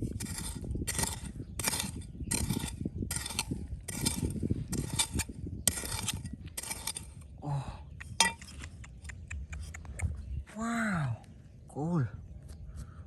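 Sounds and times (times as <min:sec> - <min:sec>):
scraping strokes: 0:00.0 - 0:07.2
hard objects knocking and clinking: 0:08.2 - 0:08.6.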